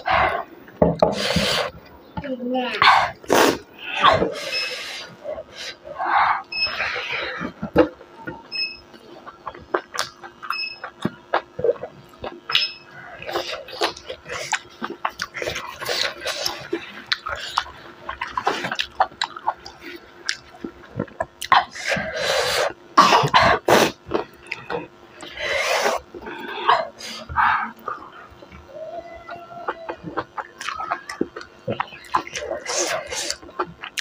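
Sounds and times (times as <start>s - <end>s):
close-miked chewing: 8.9s - 34.0s.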